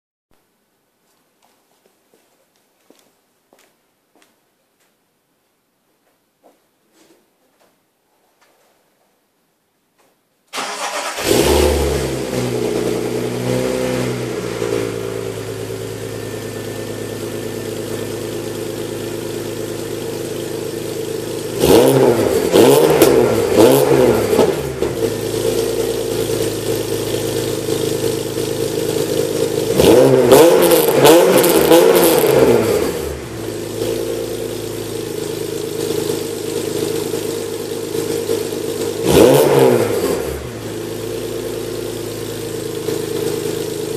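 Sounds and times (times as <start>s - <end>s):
car engine idling and revving: 10.6s - 43.9s.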